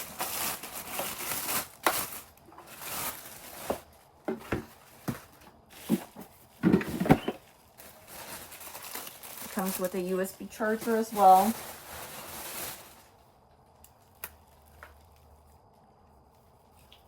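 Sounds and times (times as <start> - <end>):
packaging rustling and crinkling: 0.0 - 15.6
items tapping and knocking: 3.6 - 7.4.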